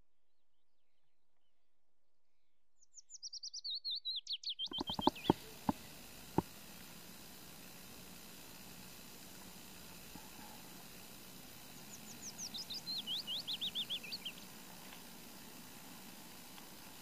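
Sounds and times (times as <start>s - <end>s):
sharp clicks: 4.6s - 6.9s
steady background hiss: 4.7s - 17.0s
songbird whistling descending notes: 12.1s - 14.3s.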